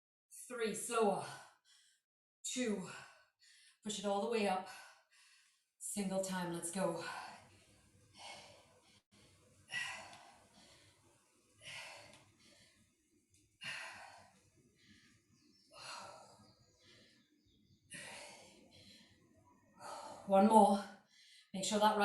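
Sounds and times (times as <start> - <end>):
woman breathing hard: 4.7 - 5.7, 7.0 - 21.5.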